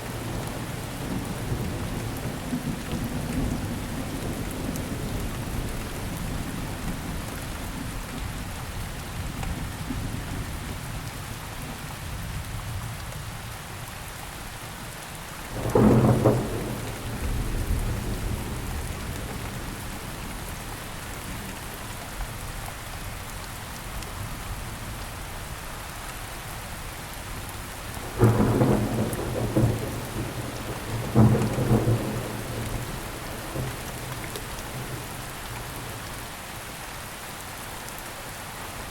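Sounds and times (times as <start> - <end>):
rain falling: 0.0 - 38.9
thunderclaps rumbling: 15.5 - 20.6, 28.1 - 36.0.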